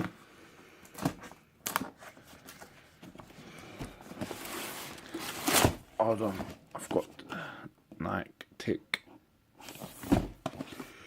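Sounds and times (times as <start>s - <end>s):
packaging rustling: 1.0s - 6.7s.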